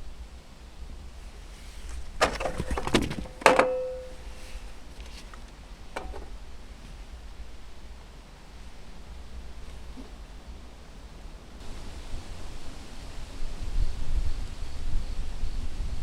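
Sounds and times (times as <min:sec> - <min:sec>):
objects clicking and knocking: 0:01.8 - 0:04.2
sharp ringing knock: 0:03.5 - 0:04.2.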